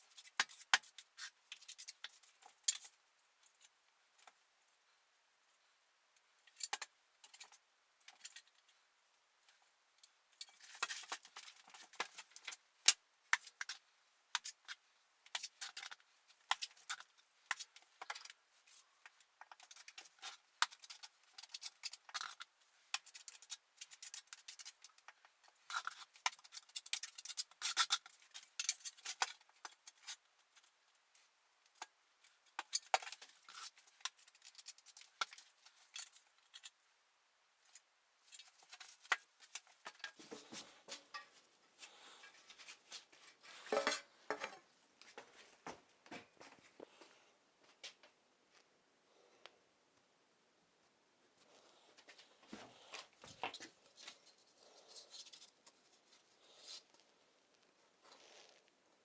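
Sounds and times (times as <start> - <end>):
metal scraping against mortar: 43.3 - 44.6.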